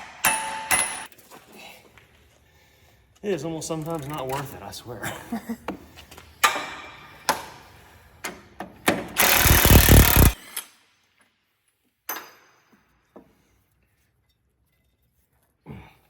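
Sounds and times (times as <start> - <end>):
impact wrench hammering: 0.0 - 1.1, 8.8 - 10.4.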